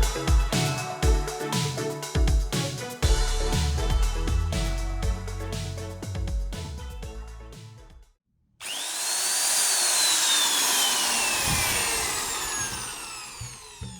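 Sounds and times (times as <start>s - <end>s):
electronic music: 0.0s - 7.9s
electric drill motor whine: 8.6s - 13.9s.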